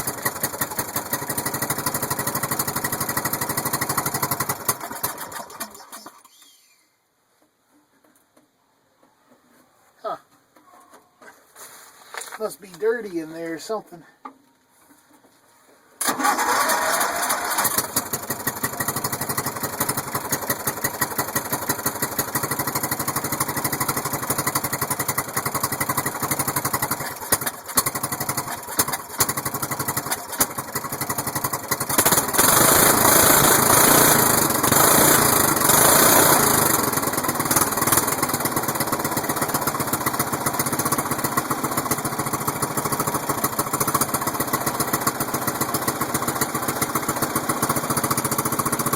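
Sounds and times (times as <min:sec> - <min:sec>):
lawn mower engine running: 0:00.0 - 0:06.3, 0:16.0 - 0:48.9.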